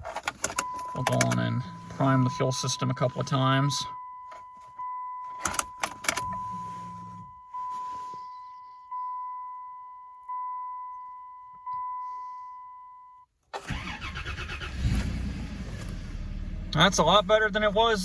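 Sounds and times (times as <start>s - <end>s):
engine cranking and starting: 0.0s - 2.1s, 13.5s - 17.0s
dashboard warning chime bonging: 0.4s - 13.3s.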